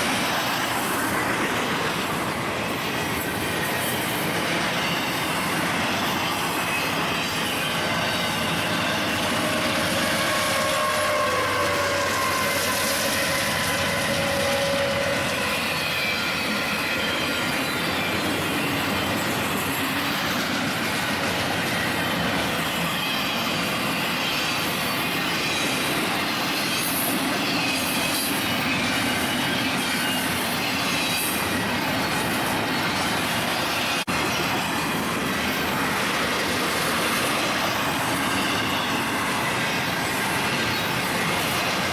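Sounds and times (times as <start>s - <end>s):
train rumbling: 0.0s - 41.9s
train wheels squealing on rails: 0.0s - 41.9s.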